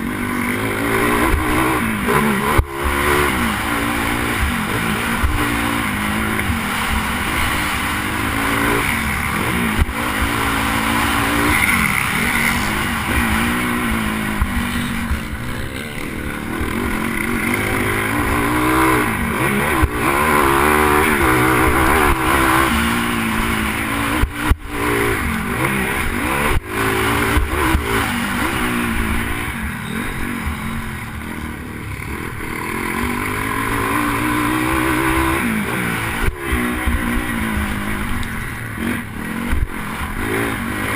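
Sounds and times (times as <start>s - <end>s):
motorbike engine revving: 0.0s - 40.9s.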